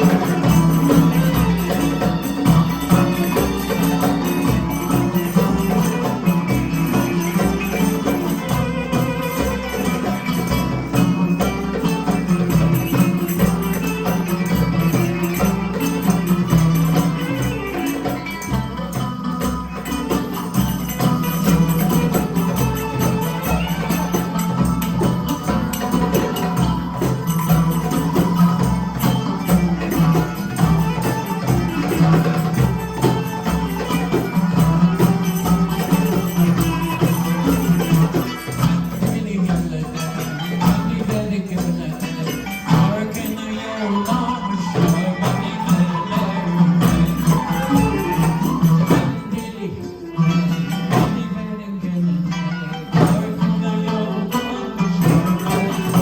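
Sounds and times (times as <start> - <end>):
percussive beat: 0.0 - 51.5, 52.9 - 56.0
live folk band playing: 0.0 - 56.0.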